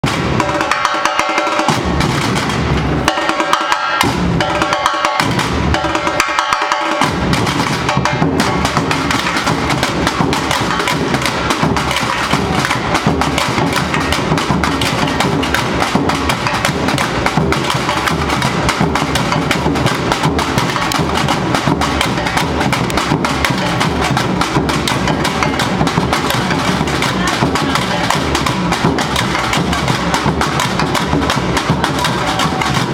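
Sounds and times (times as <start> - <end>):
samba percussion ensemble: 0.0 - 32.9
deep bass drums: 7.0 - 32.9.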